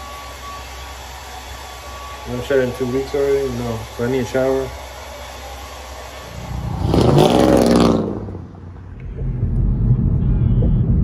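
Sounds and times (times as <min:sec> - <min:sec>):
vehicle engine revving hard: 0:06.3 - 0:08.7
low road rumble: 0:06.3 - 0:11.0.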